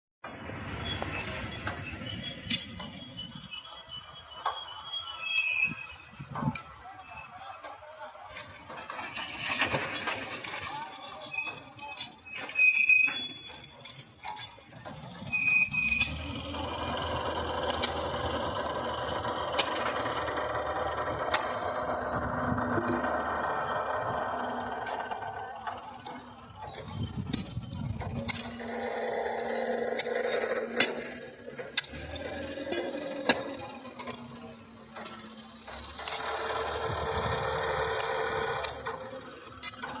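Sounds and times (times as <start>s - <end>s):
mechanical running noise: 13.3s - 40.0s
sharp metallic clicks: 15.7s - 40.0s
machine humming: 16.0s - 40.0s.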